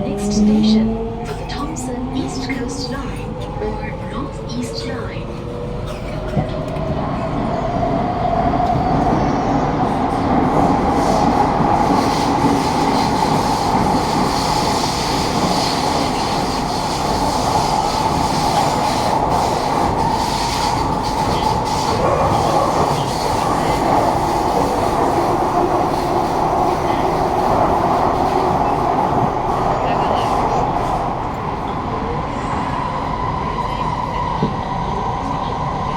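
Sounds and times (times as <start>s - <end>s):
train wheels on track: 0.0s - 35.9s.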